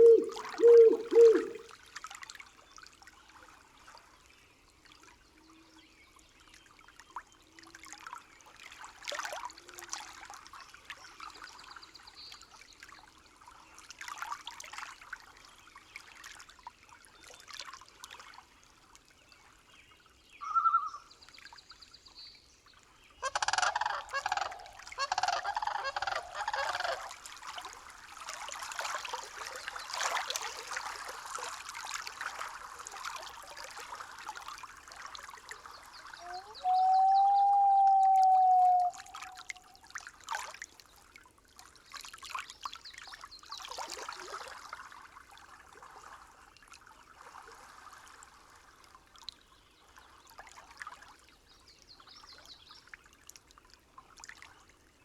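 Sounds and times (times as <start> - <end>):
bird-like calls: 0.0 - 1.6, 20.4 - 21.0, 23.2 - 27.1, 36.1 - 39.7
faint low calls: 0.0 - 1.6
running water: 0.0 - 1.7, 23.2 - 40.0.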